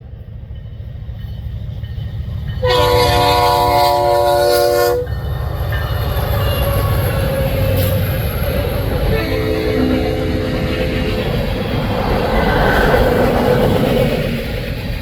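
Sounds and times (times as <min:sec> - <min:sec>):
locomotive rumble: 0:00.4 - 0:15.0
locomotive air horn blast: 0:02.6 - 0:05.1, 0:09.0 - 0:11.2.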